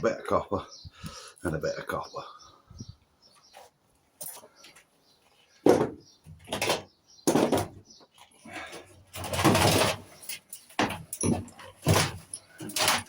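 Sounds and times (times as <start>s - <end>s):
metal parts knocking and clattering: 5.7s - 7.8s, 8.6s - 13.0s.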